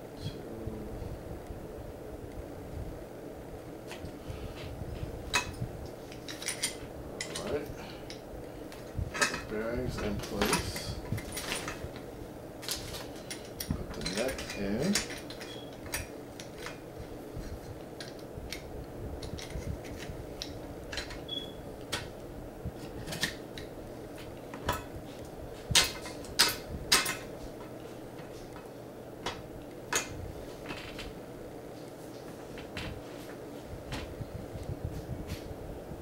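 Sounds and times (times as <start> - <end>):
faint steady hum: 0.0 - 36.0
metal parts clinking and knocking: 5.3 - 7.5, 13.2 - 16.8.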